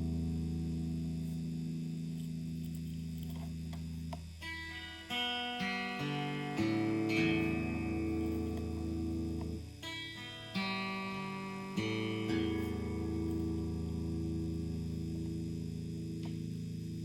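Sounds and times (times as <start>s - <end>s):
guitar chord ringing: 0.0s - 17.0s
picked guitar notes: 0.0s - 17.0s.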